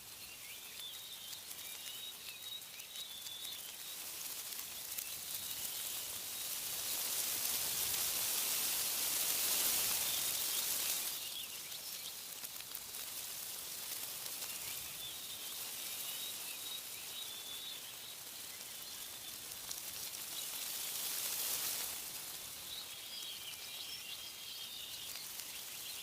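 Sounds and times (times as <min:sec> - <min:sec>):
small birds chirping: 0:00.0 - 0:26.0
wind rustling tree leaves: 0:00.0 - 0:26.0.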